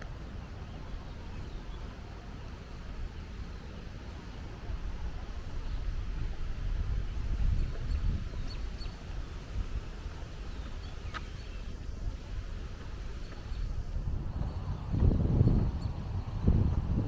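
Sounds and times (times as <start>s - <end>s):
steady low rumble: 0.0s - 17.0s
bird chirps: 7.1s - 13.7s.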